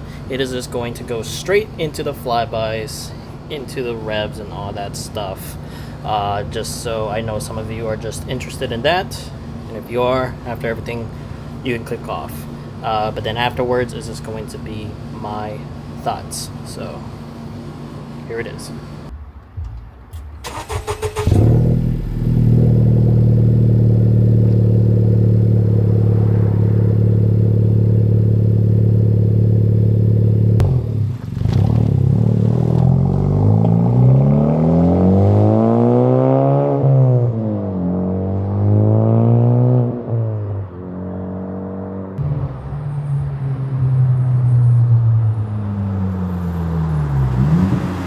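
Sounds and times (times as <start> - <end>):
car engine accelerating through gears: 20.1 - 48.0.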